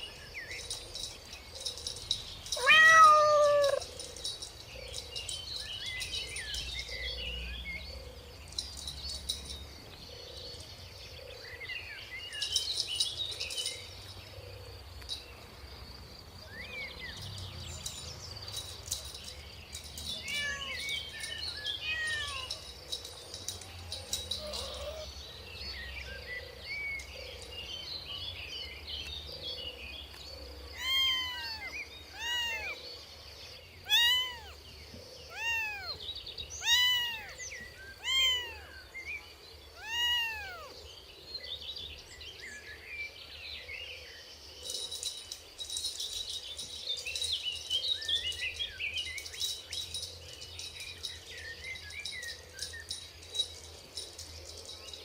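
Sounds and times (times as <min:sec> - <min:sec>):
small birds chirping: 0:00.0 - 0:55.0
kitten meowing: 0:02.6 - 0:03.9, 0:20.3 - 0:20.9, 0:21.8 - 0:22.5, 0:24.4 - 0:25.1, 0:30.8 - 0:32.8, 0:33.9 - 0:34.6, 0:35.3 - 0:36.0, 0:36.6 - 0:37.4, 0:38.0 - 0:38.7, 0:39.8 - 0:40.7.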